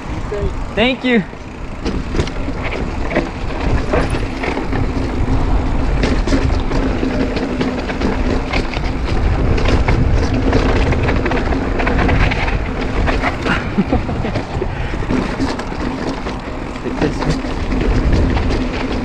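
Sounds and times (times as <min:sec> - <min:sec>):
bike chain rattling clicks: 0:00.0 - 0:19.0
wind and tyres rushing: 0:00.0 - 0:19.0.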